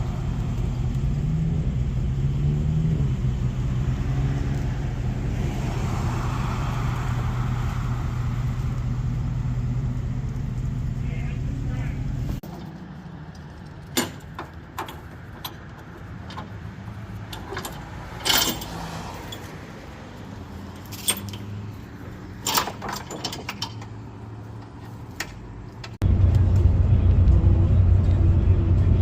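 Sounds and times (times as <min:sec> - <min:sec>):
low vehicle hum: 0:00.0 - 0:29.0
running vehicle rumble: 0:00.0 - 0:29.0
metallic clicks and clanks: 0:12.4 - 0:19.5, 0:20.8 - 0:21.6, 0:22.4 - 0:26.0.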